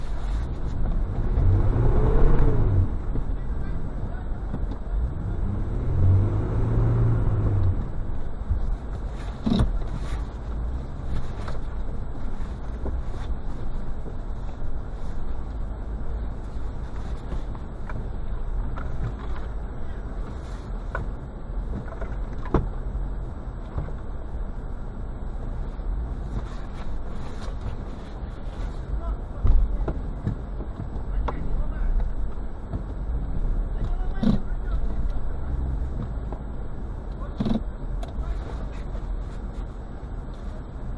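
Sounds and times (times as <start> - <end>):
car engine revving: 0.7 - 8.2.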